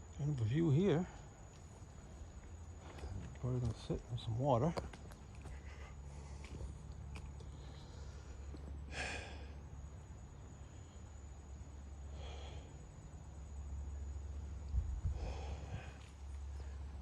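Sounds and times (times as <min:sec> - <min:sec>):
steady low rumble: 0:00.0 - 0:17.0
man breathing heavily: 0:05.4 - 0:13.4, 0:14.8 - 0:17.0.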